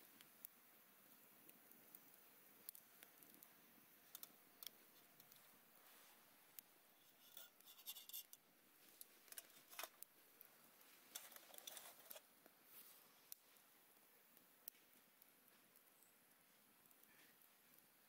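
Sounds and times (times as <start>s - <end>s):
faint clicks: 4.1s - 5.4s
scratchy rustling: 11.2s - 12.2s.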